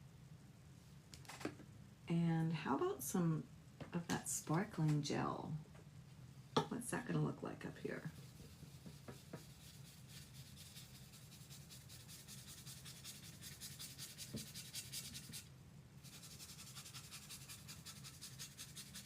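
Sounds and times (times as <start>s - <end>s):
faint steady hum: 0.0s - 19.0s
brush scrubbing paint onto wood: 8.1s - 19.0s.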